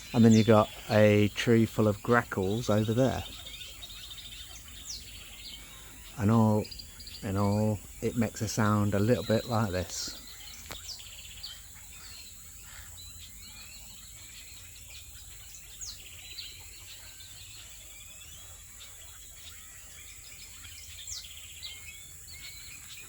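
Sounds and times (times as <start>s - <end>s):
birds chirping and whistling: 0.0s - 23.0s
steady high hiss: 5.5s - 10.2s.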